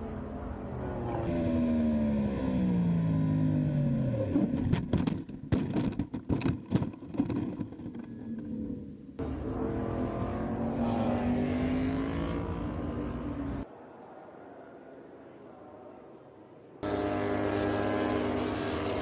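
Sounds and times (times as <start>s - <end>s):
racing motorcycle passing: 0.0s - 4.6s, 8.4s - 13.7s, 16.8s - 19.0s
sharp knocks and scraping: 4.6s - 8.5s.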